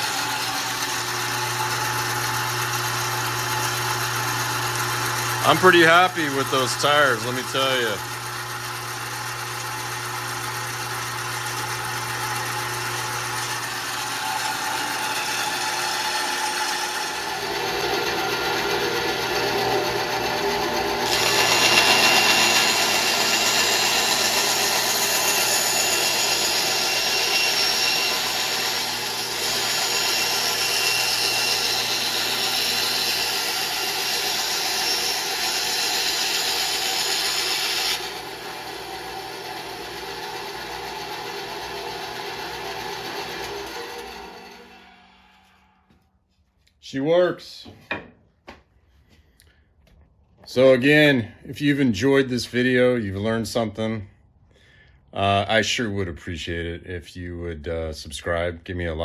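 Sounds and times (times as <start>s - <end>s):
band saw motor hum: 0.0s - 46.0s
saw blade cutting wood: 0.0s - 46.0s.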